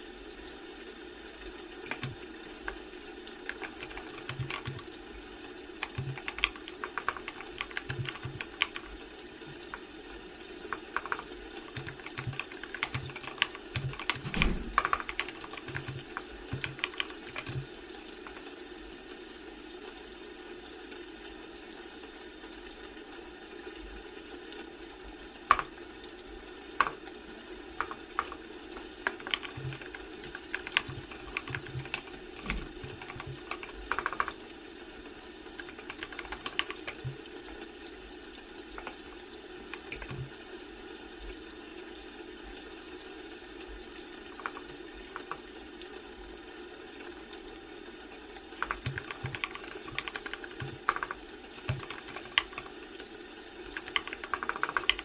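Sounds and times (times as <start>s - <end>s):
steady background hum: 0.0s - 55.0s
keyboard typing: 1.7s - 2.8s, 3.4s - 5.0s, 5.8s - 10.0s, 10.6s - 18.6s, 25.5s - 25.8s, 26.8s - 34.6s, 35.4s - 37.7s, 38.8s - 40.4s, 44.4s - 45.5s, 48.1s - 52.8s, 53.7s - 55.0s.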